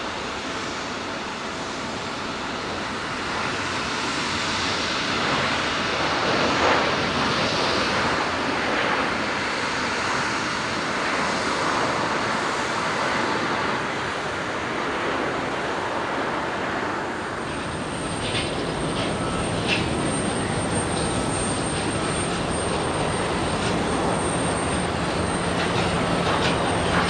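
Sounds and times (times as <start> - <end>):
jet airliner engines rushing: 0.0 - 27.0.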